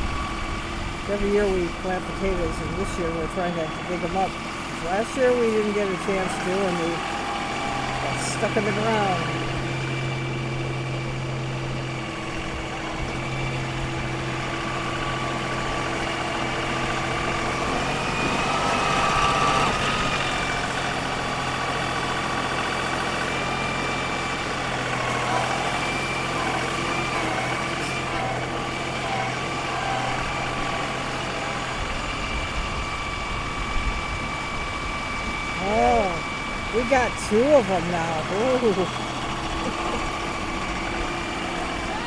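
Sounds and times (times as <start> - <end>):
engine whine bending in pitch: 0.0 - 42.0
tractor engine hum: 0.0 - 42.0.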